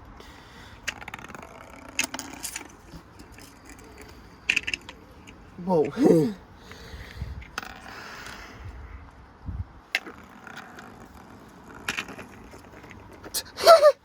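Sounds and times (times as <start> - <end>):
coin clicking inside drum: 0.9 - 5.0
person exclaiming: 5.6 - 6.4, 13.4 - 14.0.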